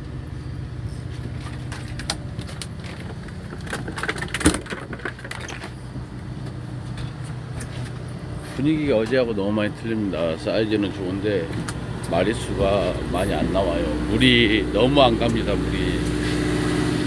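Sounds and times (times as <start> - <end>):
boat engine humming: 0.0 - 17.0
gear clicking and knocking on deck: 1.2 - 7.8.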